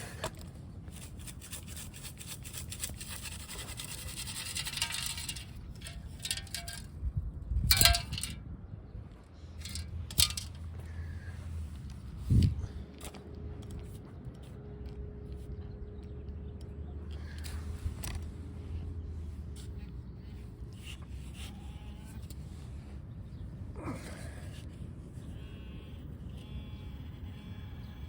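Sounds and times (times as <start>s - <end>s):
metal scraping and clinking: 0.9s - 7.0s, 7.7s - 8.4s, 9.6s - 10.8s
metal detector tones: 3.8s - 6.8s.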